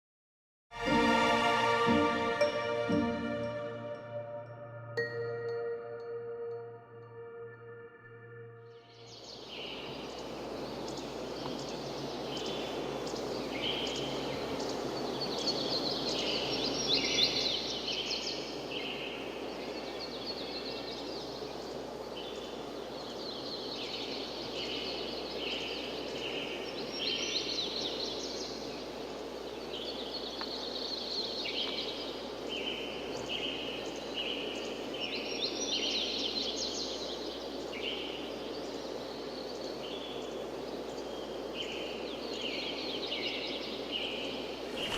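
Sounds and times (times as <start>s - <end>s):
forest birds singing: 2.0s - 44.9s
steady rushing noise: 44.4s - 44.9s.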